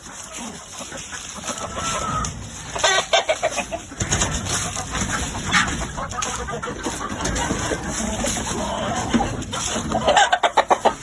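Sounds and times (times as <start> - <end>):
gamefowl clucking: 0.0 - 11.0.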